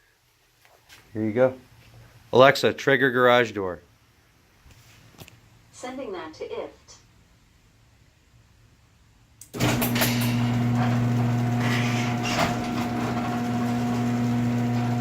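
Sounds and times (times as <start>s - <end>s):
garage door motor humming: 9.4s - 15.0s
garage door clicks and rattles: 9.5s - 14.0s.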